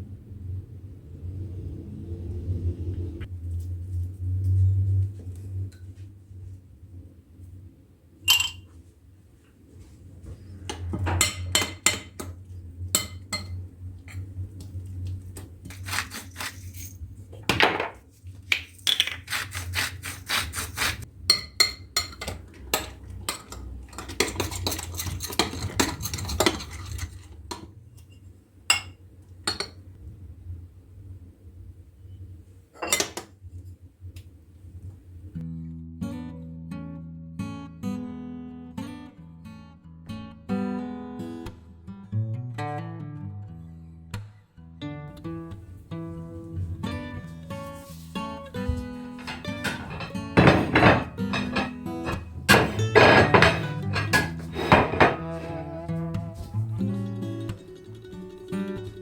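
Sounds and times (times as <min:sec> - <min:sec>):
utensils and dishes clinking: 0:18.9 - 0:29.8, 0:32.8 - 0:33.3, 0:49.1 - 0:55.6.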